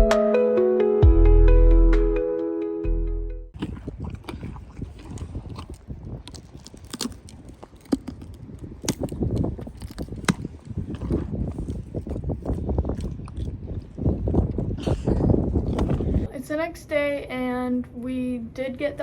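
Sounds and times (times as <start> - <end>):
crunching and clicking: 3.6 - 14.7.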